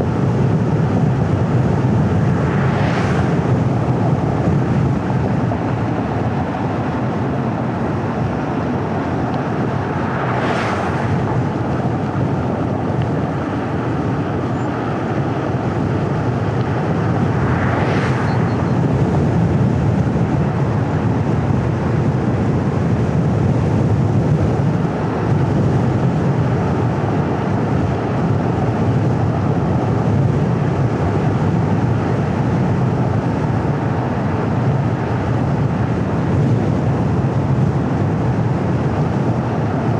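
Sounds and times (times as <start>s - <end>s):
car tyre and engine noise: 0.0s - 39.9s
vehicles whooshing past: 1.1s - 21.1s.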